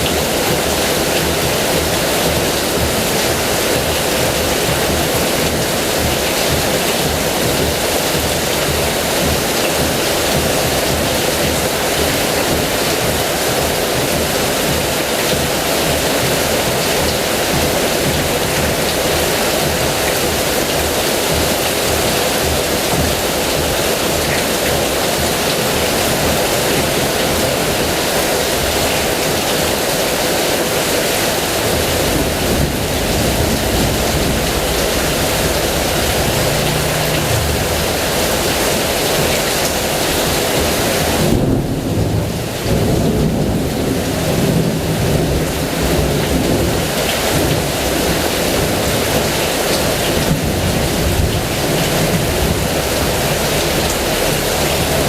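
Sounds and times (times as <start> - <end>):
heavy rain falling: 0.0 - 55.0
low rolling thunder: 31.4 - 49.0.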